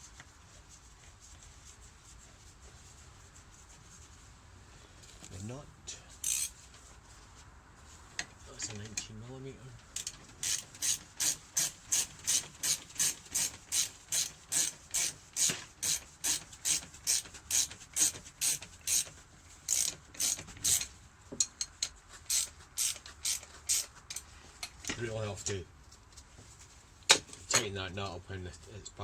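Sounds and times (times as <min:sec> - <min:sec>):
socket ratchet clicking: 0:06.2 - 0:06.5, 0:10.0 - 0:19.1, 0:19.7 - 0:20.9, 0:21.8 - 0:24.2.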